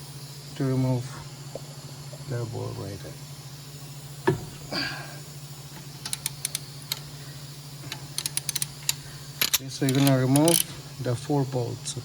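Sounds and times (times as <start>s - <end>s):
socket tool clicking: 6.0s - 7.0s, 7.9s - 10.7s
bolt cracking loose: 6.0s - 7.1s, 7.9s - 10.7s.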